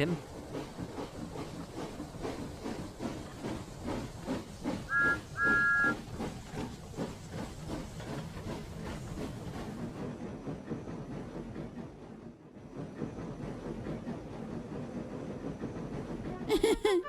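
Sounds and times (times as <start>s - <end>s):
steam locomotive chuffing: 0.0s - 17.0s
two-note steam whistle: 4.9s - 6.0s.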